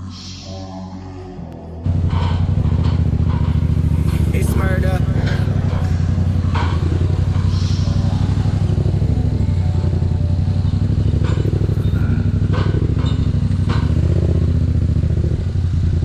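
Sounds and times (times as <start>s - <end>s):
motorcycle engine running: 1.8s - 16.0s.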